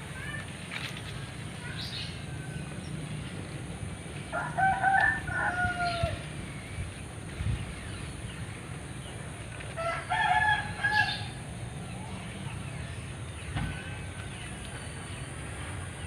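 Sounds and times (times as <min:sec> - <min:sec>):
rooster crowing: 0:04.3 - 0:06.2, 0:09.8 - 0:11.4.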